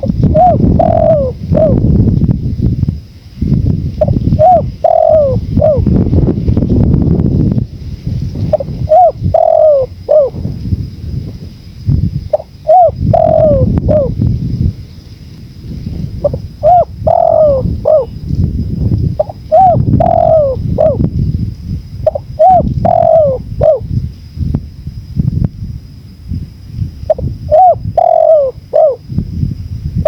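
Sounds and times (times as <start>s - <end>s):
dove cooing: 0.0s - 2.0s, 4.0s - 6.0s, 8.5s - 10.5s, 12.3s - 14.3s, 16.2s - 18.2s, 19.2s - 21.1s, 22.0s - 23.9s, 27.1s - 29.0s
wind rumble: 0.0s - 30.0s.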